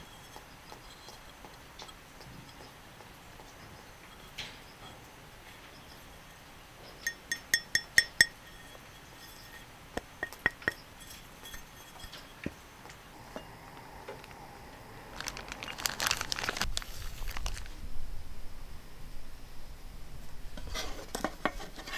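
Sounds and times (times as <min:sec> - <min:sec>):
cookware clattering and scraping: 0:08.2 - 0:12.5.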